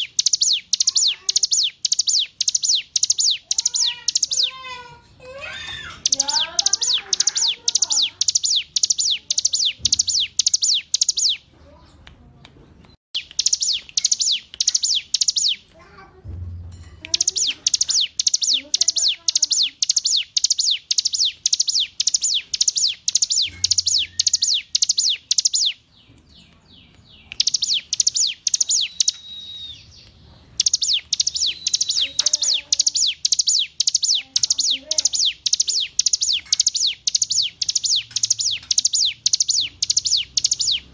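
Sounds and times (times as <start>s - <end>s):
bird singing sharp descending notes: 17.2s - 25.8s, 26.7s - 40.9s.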